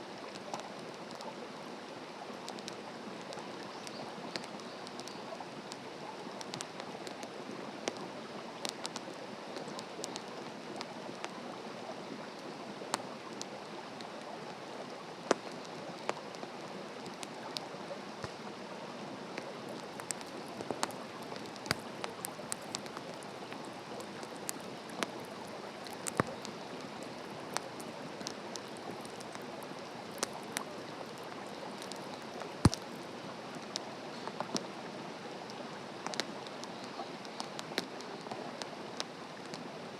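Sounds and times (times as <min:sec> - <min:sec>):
campfire crackling and popping: 0:02.4 - 0:11.4, 0:15.2 - 0:18.5, 0:19.3 - 0:34.7, 0:36.0 - 0:39.6
steady fire hiss: 0:19.3 - 0:34.6.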